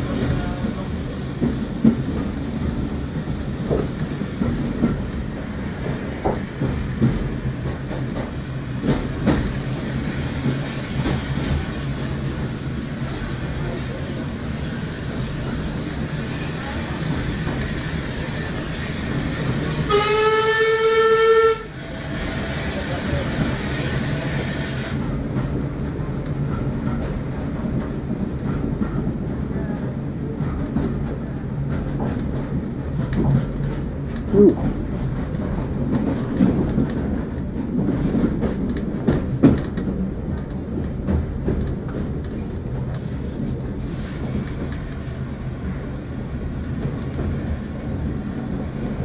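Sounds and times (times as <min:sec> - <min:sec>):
train wheels rumbling on track: 0:00.0 - 0:49.0
train horn blast: 0:19.8 - 0:21.8
clicks over rail joints: 0:29.8 - 0:45.1.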